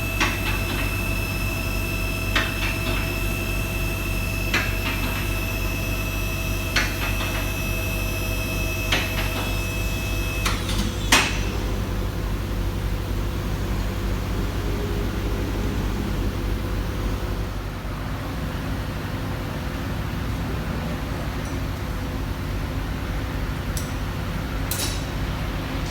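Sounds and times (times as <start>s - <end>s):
metal clacks of lift locks: 24.6s - 25.2s.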